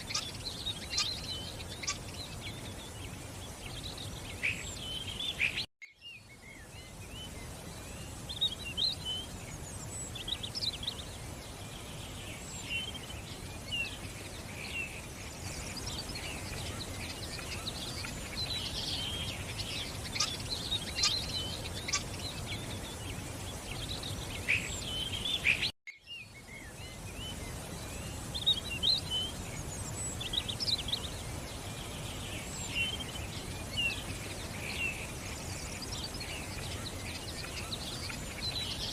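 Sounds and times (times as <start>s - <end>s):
birds chirping and singing: 0.0s - 38.9s
outdoor background hiss: 0.0s - 38.9s.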